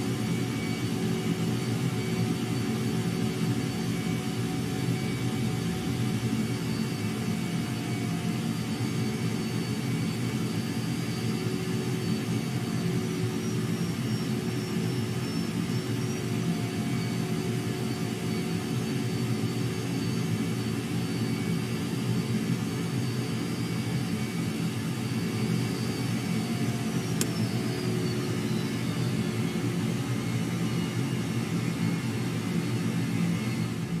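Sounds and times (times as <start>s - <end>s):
jet engines running: 0.0s - 34.0s
sharp click: 27.1s - 27.4s.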